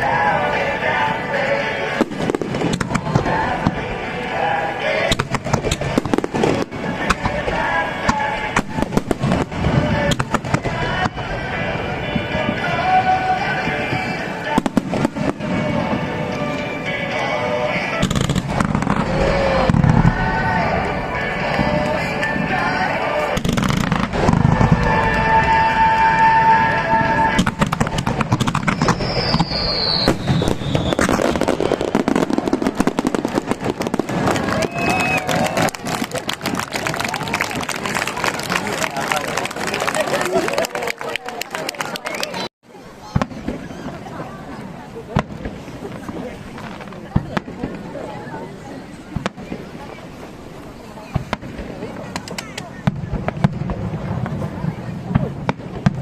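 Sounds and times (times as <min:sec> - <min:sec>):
fireworks exploding: 0:00.0 - 0:40.6, 0:41.2 - 0:56.0
firework whistle falling: 0:23.4 - 0:36.6.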